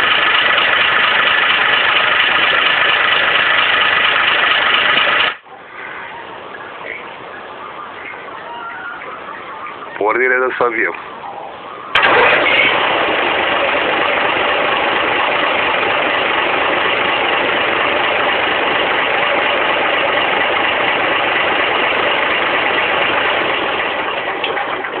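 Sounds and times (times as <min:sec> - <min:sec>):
tractor engine running: 0:00.0 - 0:05.4, 0:11.9 - 0:25.0.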